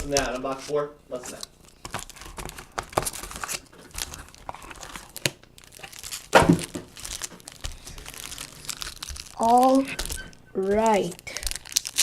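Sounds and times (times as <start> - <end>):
plastic wrap tearing and crinkling: 0.0 - 0.6, 1.3 - 12.0.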